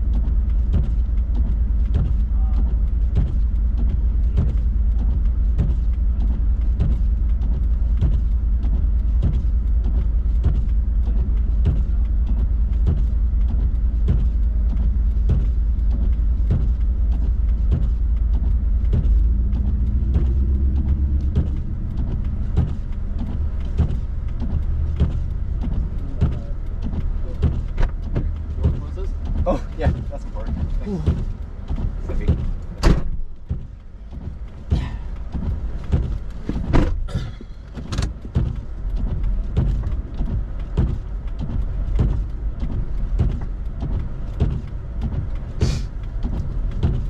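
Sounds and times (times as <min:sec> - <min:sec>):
car engine and tyres rumbling: 0:00.0 - 0:47.0
faint regular ticking: 0:00.0 - 0:47.0.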